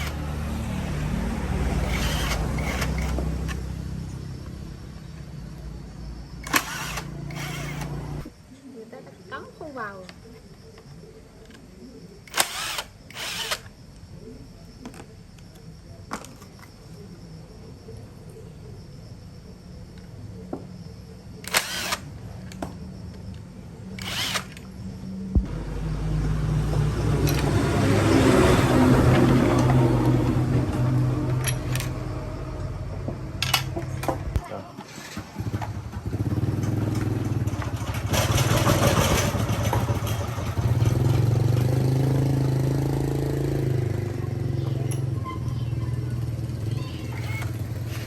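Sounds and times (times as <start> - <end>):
power tool whirring: 0.0 - 0.5, 1.6 - 3.7, 6.4 - 8.3, 12.2 - 13.7, 21.4 - 22.1, 24.0 - 24.7
chainsaw engine running: 0.0 - 3.6, 6.4 - 8.3, 12.3 - 13.7, 24.0 - 24.6.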